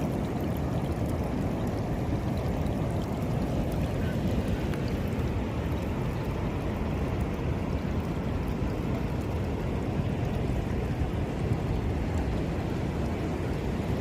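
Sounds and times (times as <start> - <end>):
sea water washing at shore: 0.0 - 14.0.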